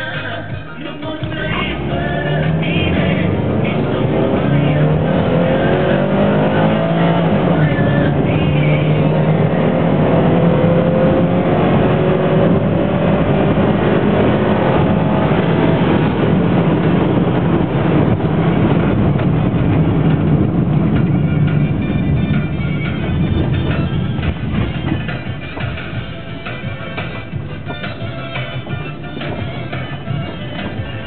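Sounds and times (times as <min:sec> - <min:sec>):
car engine revving high: 0:01.3 - 0:25.8.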